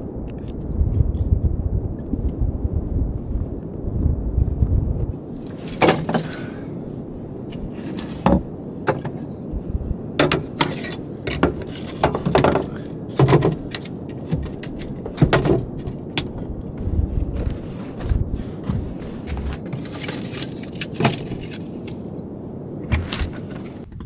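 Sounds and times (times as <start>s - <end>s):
steady low rumble: 0.0s - 19.9s
irregular clatters and knocks: 4.4s - 6.6s, 7.4s - 22.0s, 22.9s - 24.0s.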